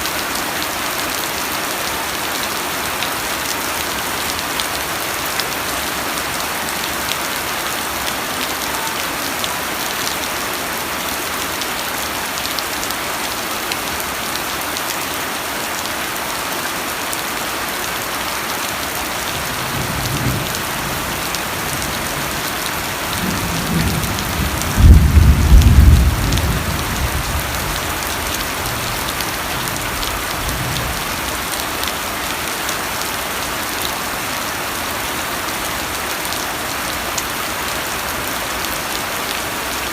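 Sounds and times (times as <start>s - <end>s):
steady rain hiss: 0.0s - 39.9s
low rumble of thunder: 23.2s - 27.8s.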